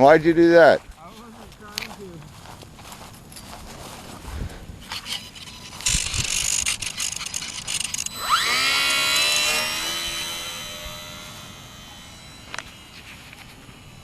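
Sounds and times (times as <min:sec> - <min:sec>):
electric motor and propeller whine: 0:04.8 - 0:14.0
rustling and clicking: 0:04.9 - 0:08.2.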